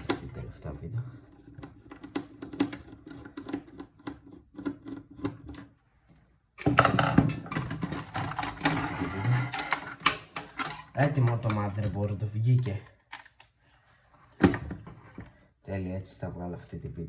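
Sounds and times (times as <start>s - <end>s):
motherboard clattering and scraping: 1.2s - 5.7s, 6.6s - 12.8s.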